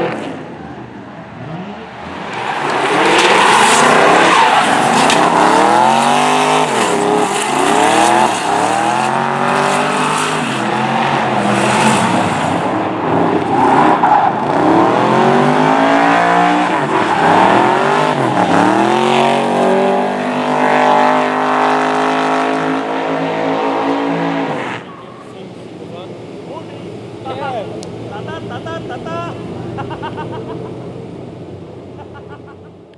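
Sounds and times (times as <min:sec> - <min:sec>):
car engine revving hard: 0:00.0 - 0:32.9
tyre squeal: 0:02.5 - 0:10.7.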